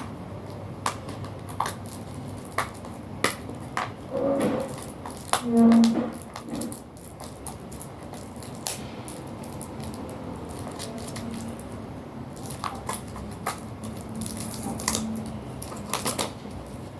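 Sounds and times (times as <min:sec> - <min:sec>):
packaging clicks and taps: 0:00.0 - 0:04.0, 0:12.4 - 0:16.9.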